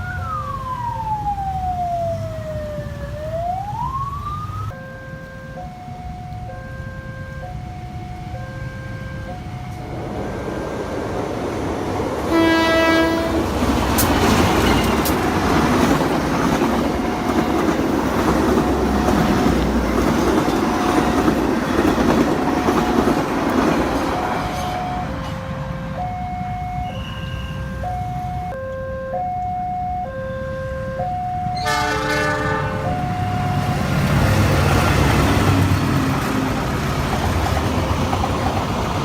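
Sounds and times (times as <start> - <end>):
train passing rumble: 0.0 - 29.9, 30.6 - 39.0
level crossing warning signal: 0.0 - 36.6
train horn: 4.8 - 10.8, 12.3 - 15.0, 24.3 - 28.0, 31.6 - 33.9.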